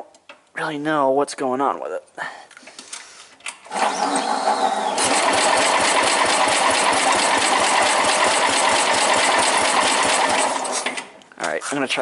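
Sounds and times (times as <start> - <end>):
garden tractor engine cranking: 3.7 - 11.1.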